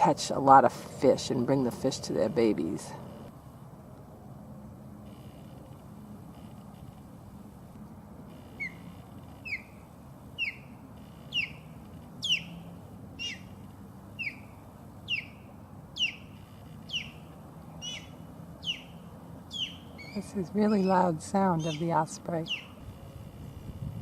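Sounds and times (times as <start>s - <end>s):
osprey whistled chirps: 8.3s - 9.8s, 10.4s - 12.6s, 13.2s - 13.6s, 14.2s - 21.0s, 21.6s - 22.8s.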